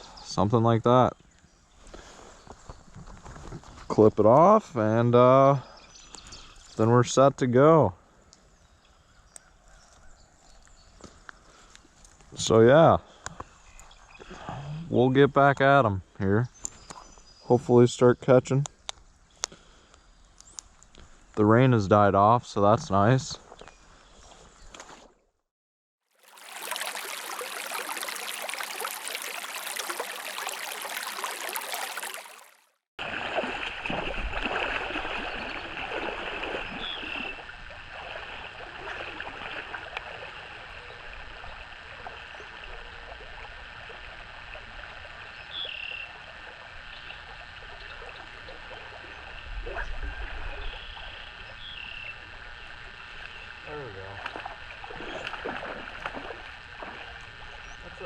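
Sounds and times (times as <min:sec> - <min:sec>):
stream water flowing: 0:26.1 - 0:50.8
rushing water or rain noise: 0:26.2 - 0:37.0
frogs calling: 0:34.8 - 0:58.0.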